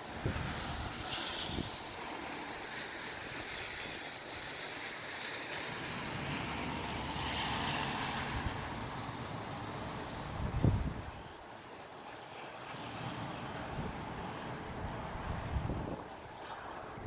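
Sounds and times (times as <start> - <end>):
gusty wind rushing: 0.0 - 3.9, 6.1 - 11.3, 13.6 - 17.0.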